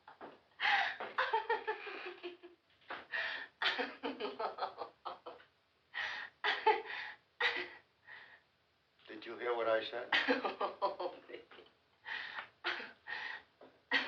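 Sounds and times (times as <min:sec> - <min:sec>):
people laughing: 0:03.6 - 0:05.4, 0:10.2 - 0:11.7.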